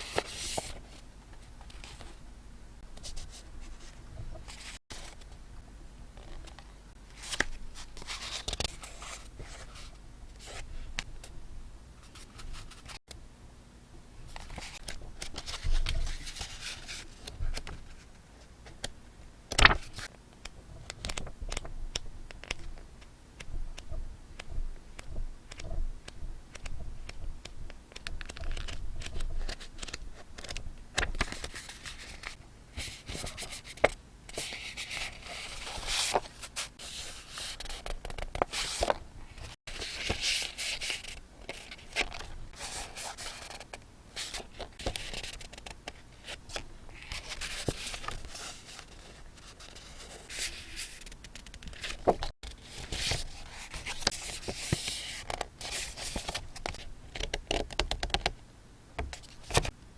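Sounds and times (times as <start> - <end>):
paper rustling and crinkling: 6.2 - 10.7, 14.3 - 18.8, 19.5 - 20.1, 28.0 - 57.3.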